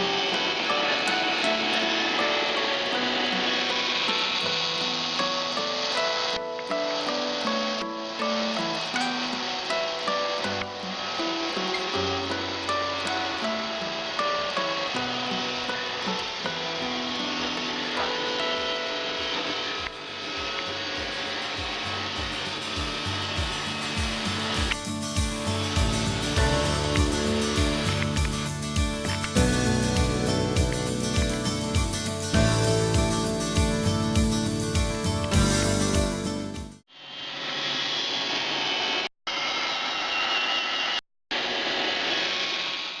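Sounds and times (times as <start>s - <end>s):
robot vacuum whirring: 0.0s - 6.0s
music with a regular beat: 18.0s - 36.8s.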